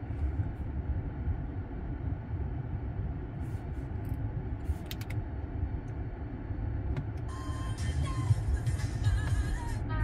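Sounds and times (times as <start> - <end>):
car engine idling: 0.0 - 10.0
dashboard control clicks: 4.8 - 5.2.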